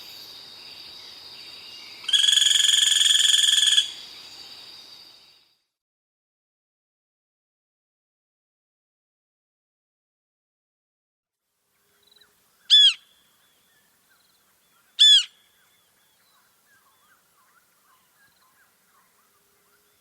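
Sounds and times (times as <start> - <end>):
faint bird chirps: 11.8 - 20.0
loud bird calls: 12.6 - 13.7, 14.6 - 20.0.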